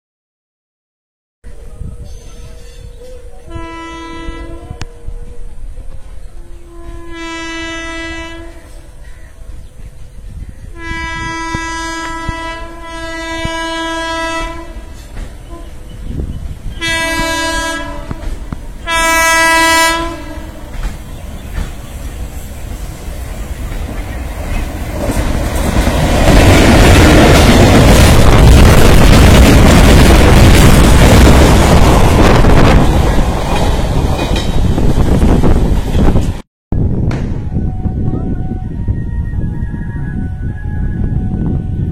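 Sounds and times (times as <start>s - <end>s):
rumble of rolling train: 1.4s - 41.9s
train horn blasts: 2.7s - 5.5s, 6.3s - 9.0s, 10.7s - 20.8s, 37.4s - 41.9s.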